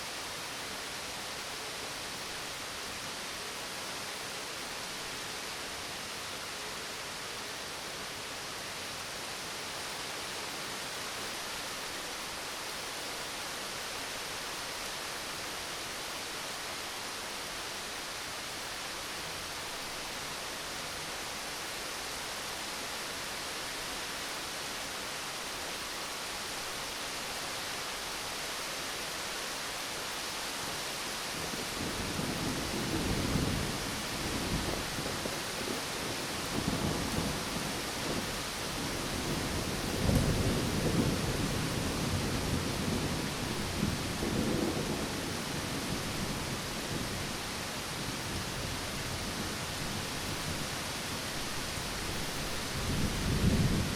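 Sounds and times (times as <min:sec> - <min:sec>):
steady rain falling: 0:00.0 - 0:53.9
low thunder rumbling: 0:31.6 - 0:47.5, 0:51.7 - 0:53.9.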